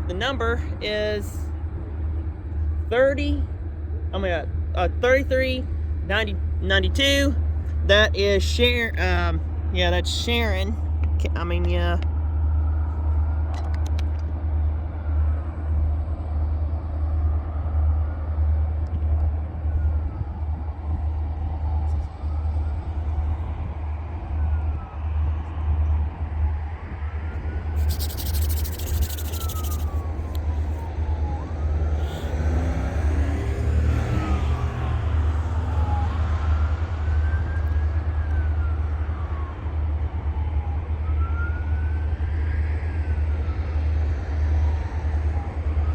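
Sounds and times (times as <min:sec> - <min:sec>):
distant siren wailing: 0:19.6 - 0:45.9.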